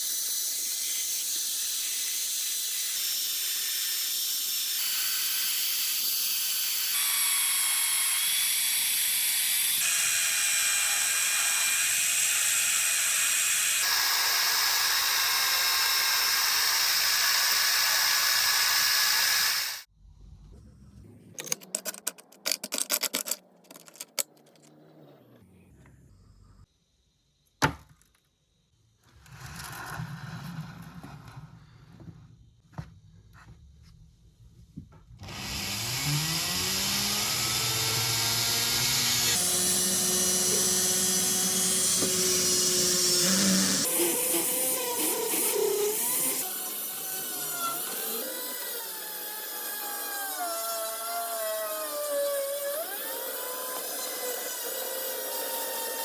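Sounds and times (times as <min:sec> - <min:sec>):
small power tool running: 0:00.0 - 0:19.9, 0:35.2 - 0:56.0.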